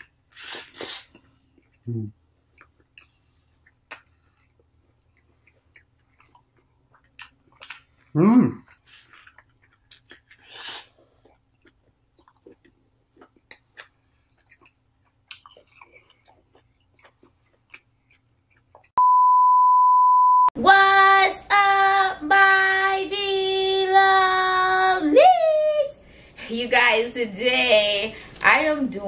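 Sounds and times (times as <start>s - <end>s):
person chewing food: 0.0s - 19.0s
high beep tone: 19.0s - 20.6s.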